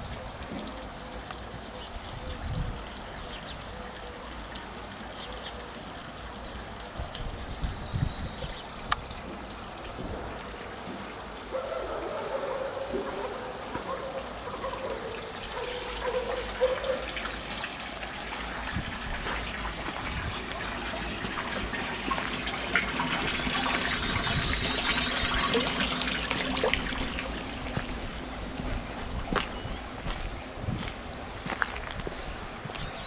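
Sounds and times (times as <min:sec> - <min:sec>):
rainwater running and trickling: 0:00.0 - 0:33.0
small water splashes: 0:14.5 - 0:32.9.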